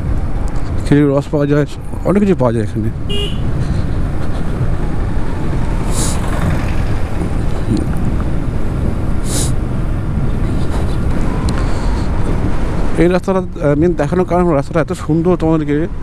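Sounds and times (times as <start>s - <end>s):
wind rushing over microphone: 2.8s - 14.2s
short hisses: 9.2s - 9.6s.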